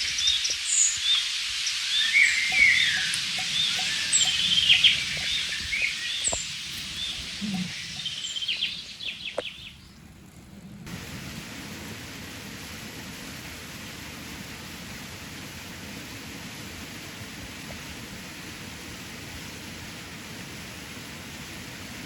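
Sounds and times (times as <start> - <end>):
flowing river water: 0.0 - 22.0
steady rushing hiss: 0.0 - 22.0
songbirds chirping: 0.1 - 10.8.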